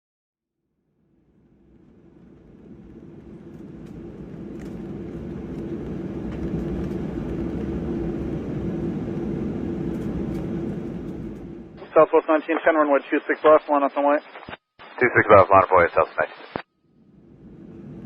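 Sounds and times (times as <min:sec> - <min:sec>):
jet engine rumble: 0:01.4 - 0:18.0.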